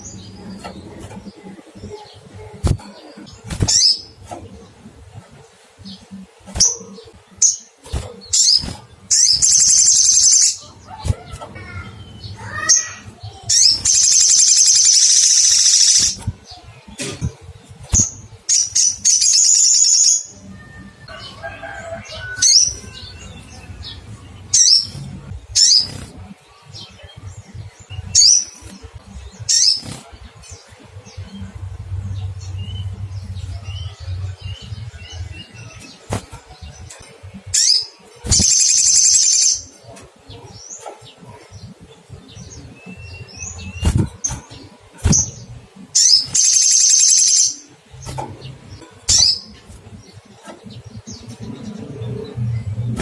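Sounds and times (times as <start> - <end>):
bird rapid high trills: 12.5 - 16.2.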